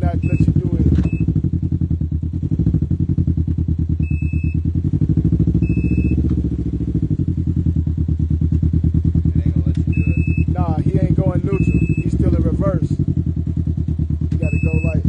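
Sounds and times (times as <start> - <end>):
engine idling rumble: 0.0 - 15.0
short high beep: 0.2 - 1.3, 4.0 - 4.7, 5.6 - 6.2, 9.9 - 10.6, 11.5 - 12.2, 14.4 - 15.0.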